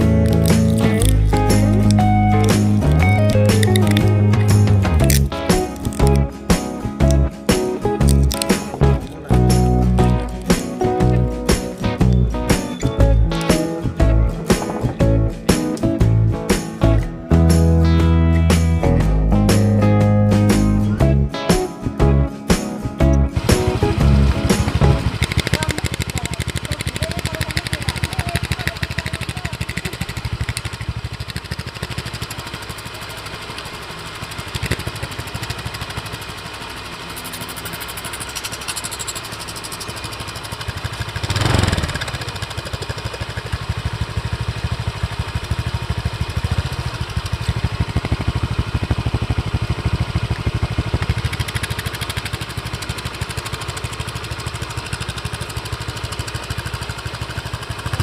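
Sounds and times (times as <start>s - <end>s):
motorcycle engine revving: 0.0s - 18.9s, 23.1s - 58.0s
loud motorcycle engine idling: 23.4s - 58.0s.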